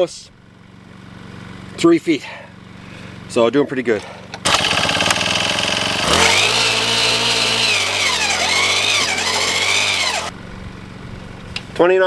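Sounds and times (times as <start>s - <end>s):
small two-stroke engine revving: 4.0s - 10.3s.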